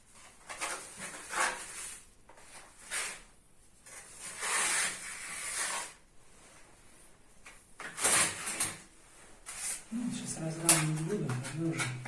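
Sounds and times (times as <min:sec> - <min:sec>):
putty knife scraping wall: 0:00.5 - 0:06.0, 0:07.8 - 0:09.8.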